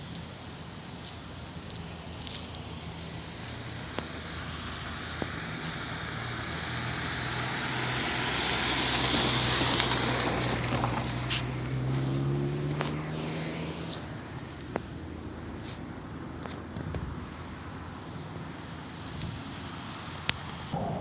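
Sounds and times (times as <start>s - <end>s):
vehicle engine passing: 3.3s - 14.6s, 20.7s - 21.0s.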